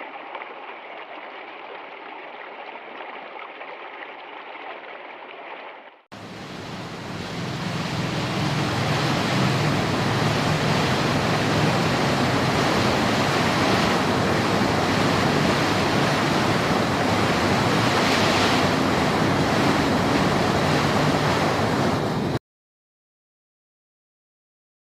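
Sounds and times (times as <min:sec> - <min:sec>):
loud rushing water: 0:06.1 - 0:22.4.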